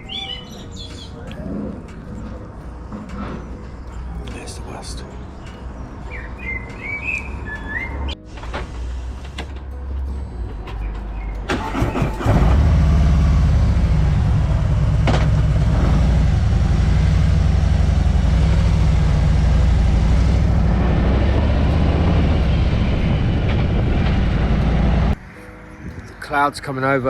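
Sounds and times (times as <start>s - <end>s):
motorcycle engine starting and idling: 11.4s - 25.2s.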